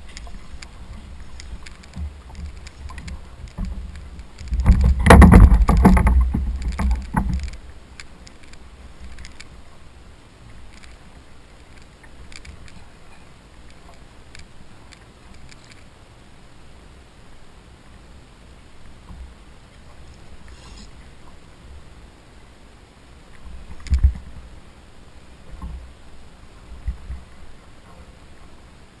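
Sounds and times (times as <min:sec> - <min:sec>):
water splashing against kayak hull: 0:00.0 - 0:15.9
small clicks: 0:00.1 - 0:09.5, 0:10.5 - 0:12.9, 0:13.6 - 0:15.9, 0:23.3 - 0:24.2.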